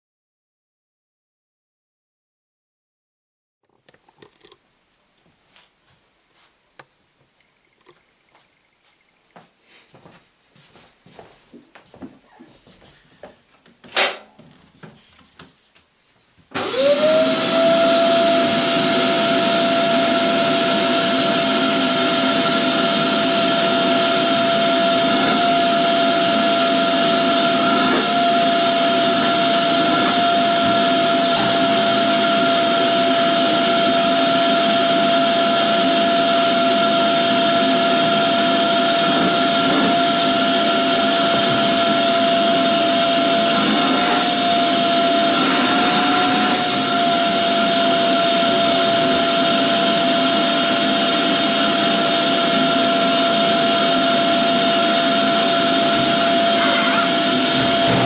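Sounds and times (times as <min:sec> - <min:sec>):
vacuum cleaner motor whine: 0:16.5 - 0:58.0.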